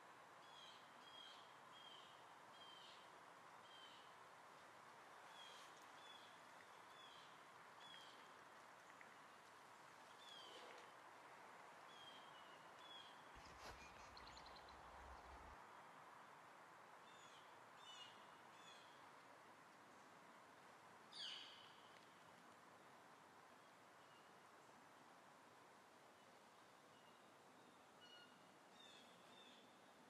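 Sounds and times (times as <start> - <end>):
background hiss: 0.0 - 30.0
faint bird chirps: 0.4 - 4.1, 5.3 - 8.3, 10.1 - 10.9, 11.9 - 15.2, 21.1 - 22.0, 26.2 - 29.8.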